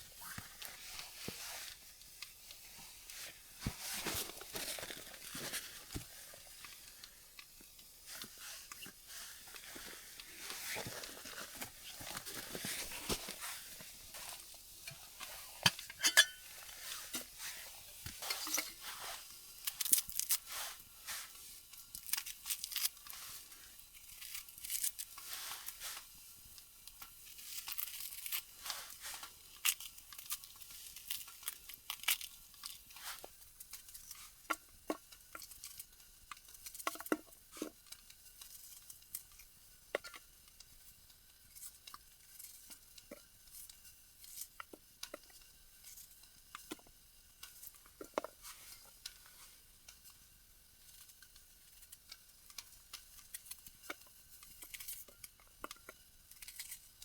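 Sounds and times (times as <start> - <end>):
crinkling and rustling: 0.0 - 35.8
cookware clinking: 15.7 - 16.5.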